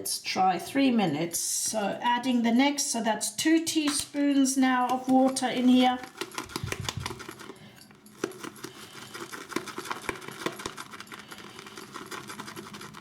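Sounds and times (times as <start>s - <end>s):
shaving brush whisking lather: 5.1s - 7.5s, 8.2s - 13.0s.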